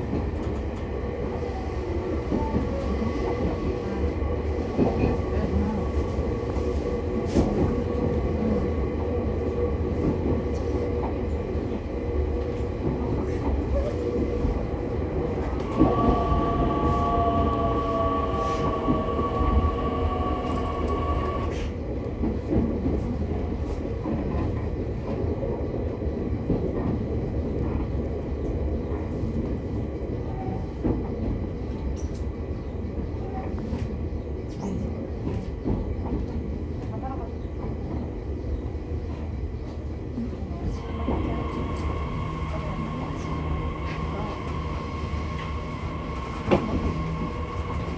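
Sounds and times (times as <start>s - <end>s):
train wheels rumbling on rails: 0.0s - 47.9s
rail joint clicks: 12.4s - 23.2s, 40.4s - 47.9s
traction motor whine: 15.6s - 21.5s, 40.8s - 47.9s.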